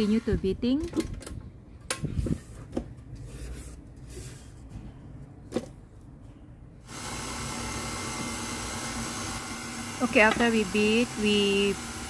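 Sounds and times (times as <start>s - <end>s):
electric mixer beating: 6.9s - 12.0s.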